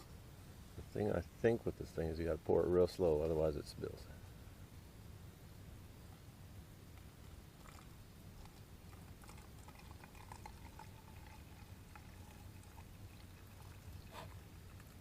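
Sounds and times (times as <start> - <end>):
liquid trickling from container: 7.6 - 15.0.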